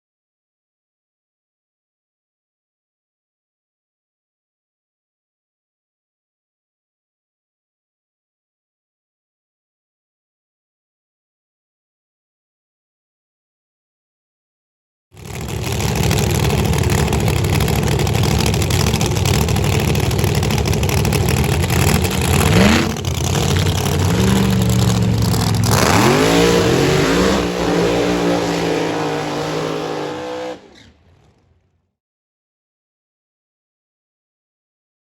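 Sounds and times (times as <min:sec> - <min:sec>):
drag racing engine at full throttle: 0:15.2 - 0:31.7.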